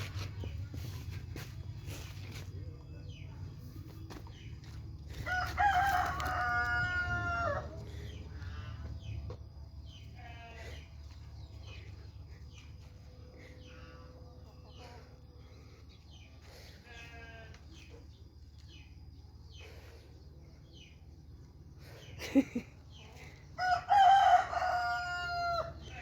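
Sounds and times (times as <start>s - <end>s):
rooster crowing: 5.1s - 7.9s, 23.6s - 26.0s.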